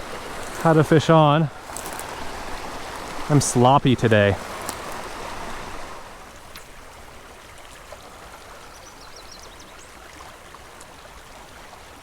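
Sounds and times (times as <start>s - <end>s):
creek running over riffles: 0.0s - 12.0s.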